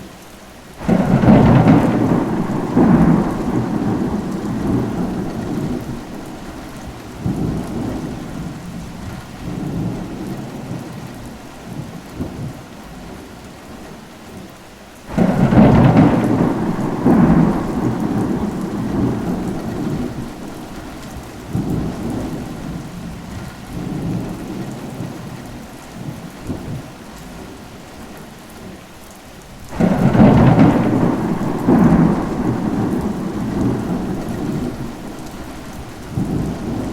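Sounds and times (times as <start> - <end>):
steady rain: 0.0 - 36.9
distant thunder rumbles: 0.8 - 12.6, 15.1 - 26.9, 29.6 - 36.9
thunderclaps rumbling: 0.8 - 12.6, 15.1 - 26.9, 29.6 - 36.9.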